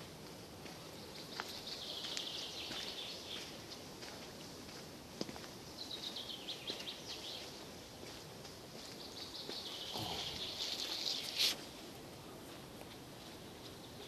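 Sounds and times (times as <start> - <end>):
small songbirds singing: 0.8 - 4.6, 5.5 - 11.6, 13.4 - 14.0.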